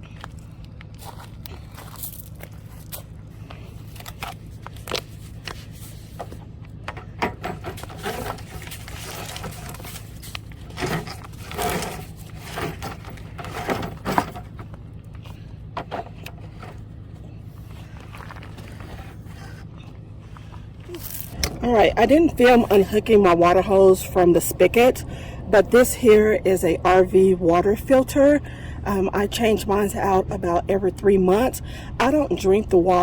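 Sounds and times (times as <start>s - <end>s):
steady low hum: 0.0s - 33.0s
handling knocks and scraping: 1.1s - 22.9s.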